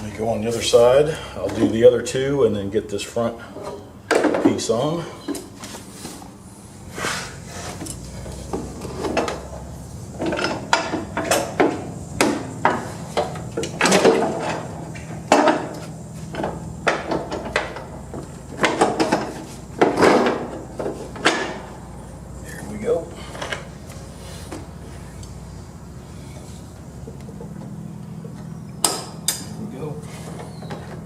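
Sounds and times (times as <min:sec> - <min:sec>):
metal clanks and scrapes: 0:06.9 - 0:17.9.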